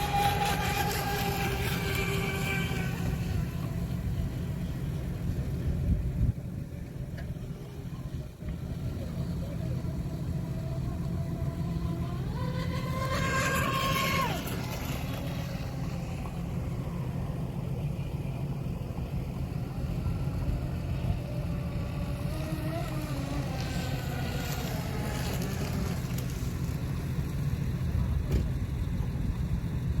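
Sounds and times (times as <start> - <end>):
radio-controlled boat whine: 0.0 - 30.0.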